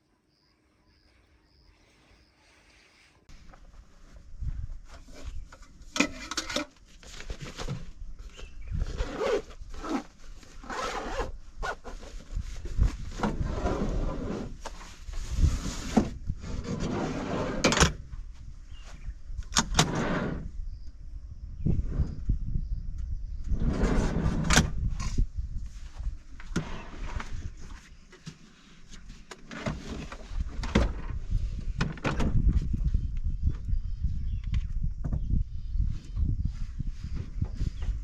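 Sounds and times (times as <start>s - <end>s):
rustling and scraping of fabric: 2.4s - 17.8s.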